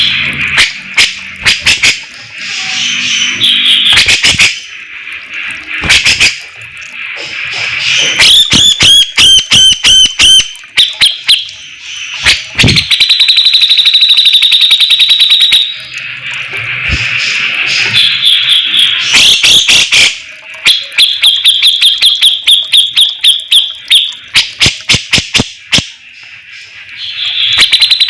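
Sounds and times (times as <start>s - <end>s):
rapid rattling bird trill: 17.1s - 28.0s
bird singing whistled notes: 27.0s - 28.0s.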